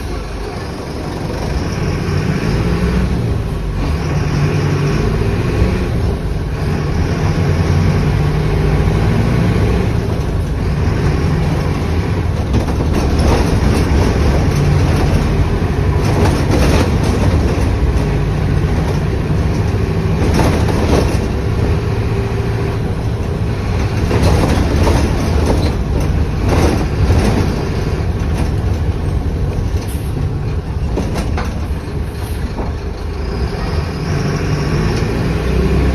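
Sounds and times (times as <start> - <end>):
bus diesel engine droning: 0.0 - 35.9
short rattles and knocks: 10.0 - 33.2.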